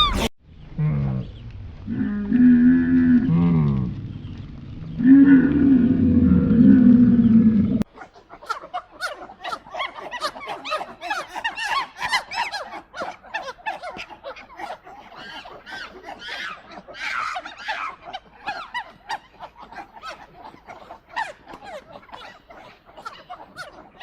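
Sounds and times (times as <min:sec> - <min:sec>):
lion roaring: 0:00.0 - 0:07.8
animals chattering: 0:01.2 - 0:24.0.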